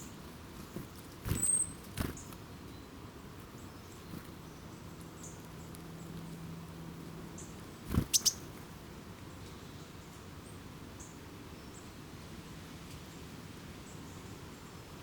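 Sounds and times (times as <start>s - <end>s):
small bird calling: 0.0s - 2.4s, 7.4s - 8.5s.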